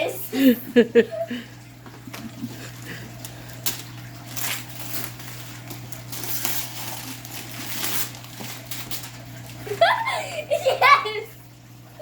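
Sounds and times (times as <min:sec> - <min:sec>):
wrapping paper tearing and crumpling: 0:03.2 - 0:09.8.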